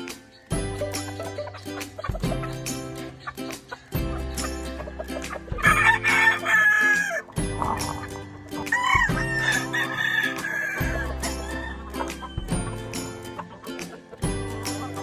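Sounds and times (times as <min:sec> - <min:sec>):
background music: 0:00.0 - 0:15.0
roosters crowing: 0:05.1 - 0:12.8.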